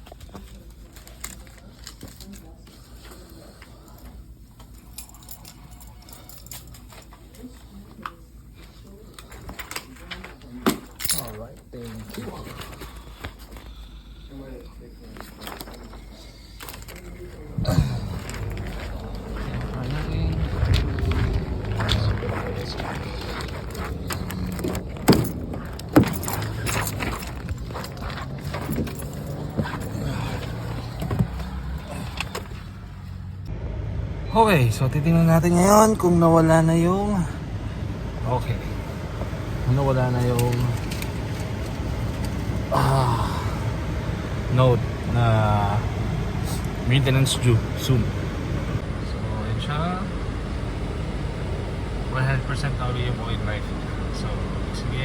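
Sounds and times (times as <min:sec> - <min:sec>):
faint background voices: 0:00.0 - 0:33.2
low steady hum: 0:14.4 - 0:55.0.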